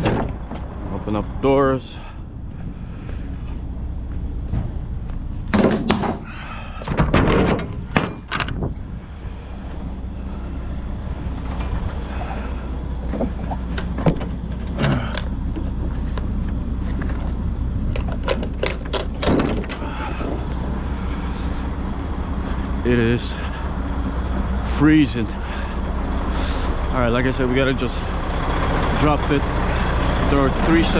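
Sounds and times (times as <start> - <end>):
metal doors clanking: 0.0 - 0.8, 5.5 - 8.8, 11.2 - 15.4, 18.0 - 20.6
truck idling: 0.0 - 30.9.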